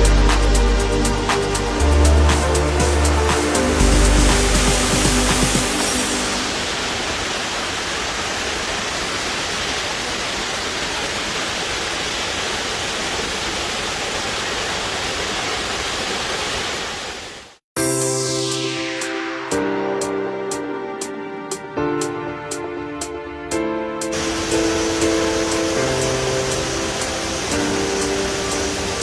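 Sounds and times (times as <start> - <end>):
waterfall rushing: 0.0 - 17.6, 24.0 - 29.0.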